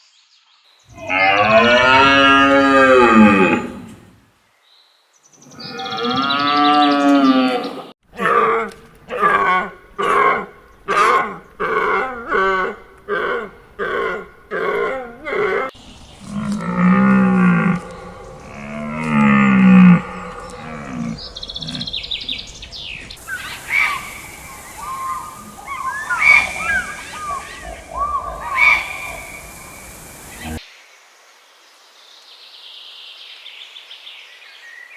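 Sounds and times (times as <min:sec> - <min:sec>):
high chirping calls: 0:00.9 - 0:04.0, 0:15.8 - 0:30.6
long low animal calls: 0:00.9 - 0:04.0, 0:05.5 - 0:30.6.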